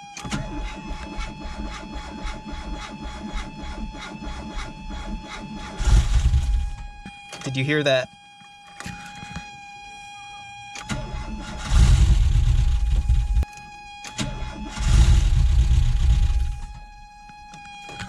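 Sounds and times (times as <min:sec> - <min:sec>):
engine starter cranking: 0:00.0 - 0:07.5, 0:10.7 - 0:18.0.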